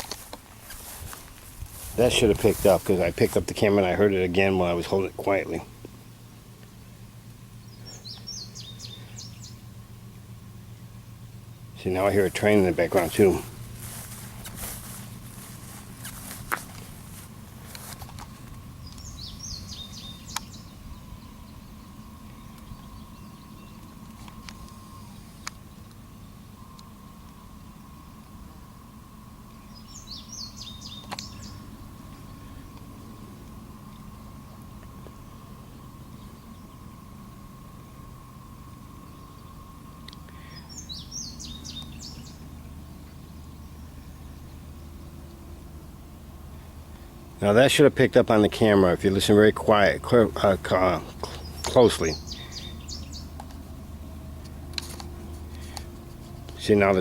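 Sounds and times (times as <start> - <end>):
distant train rumbling: 0.0 - 57.0
faint steady tone: 0.0 - 57.0
small bird chirping: 6.6 - 9.7, 11.5 - 28.7, 29.5 - 37.2, 39.0 - 45.4, 50.4 - 53.7.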